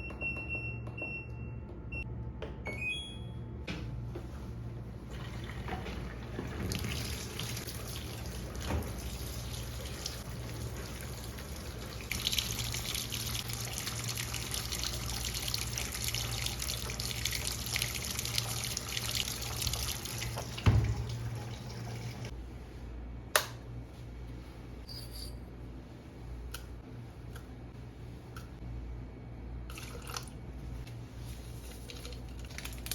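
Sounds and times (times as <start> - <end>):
tap water running into sink: 5.1 - 22.3.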